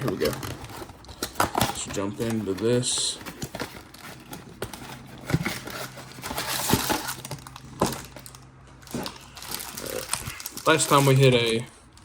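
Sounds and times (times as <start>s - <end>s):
crinkling wrapper tearing: 0.0s - 2.6s, 5.6s - 11.7s.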